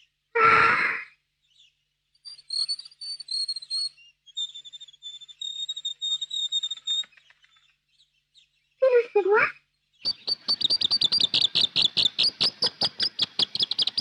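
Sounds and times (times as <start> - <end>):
cartoon bird whistling calls: 10.1 - 14.0.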